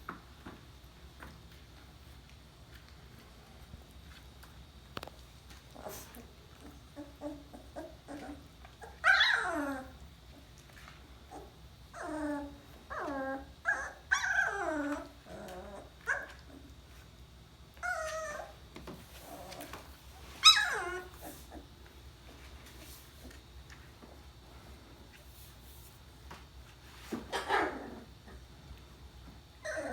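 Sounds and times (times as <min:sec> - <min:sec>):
puppies whimpering and crying: 0:05.7 - 0:10.1, 0:11.3 - 0:16.7, 0:17.8 - 0:18.6, 0:19.2 - 0:21.7, 0:29.6 - 0:29.9
faint puppy squeaks: 0:20.4 - 0:21.6, 0:29.6 - 0:29.9.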